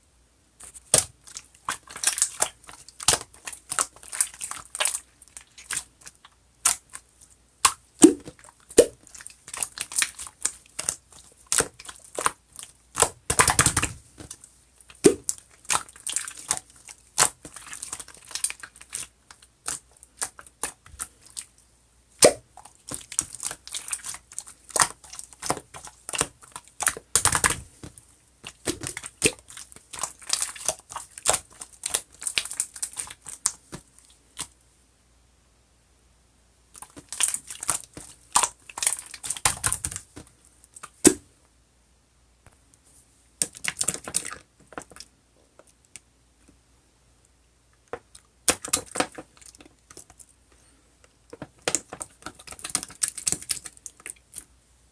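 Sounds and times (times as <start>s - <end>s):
slime squished by hand: 0.6s - 21.5s, 22.2s - 34.5s, 36.8s - 41.3s, 48.0s - 50.2s.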